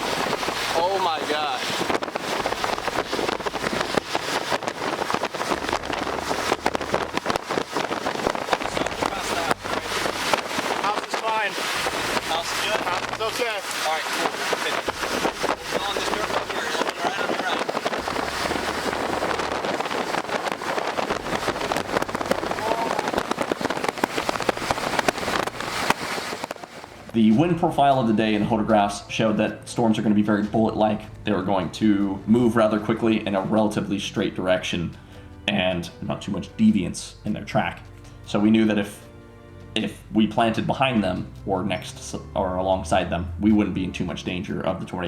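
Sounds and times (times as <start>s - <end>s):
low vehicle rumble: 0.0s - 13.5s, 14.8s - 35.5s, 39.0s - 44.9s
crackle of small hits: 0.0s - 27.2s
gusty wind buffeting microphone: 0.0s - 33.9s.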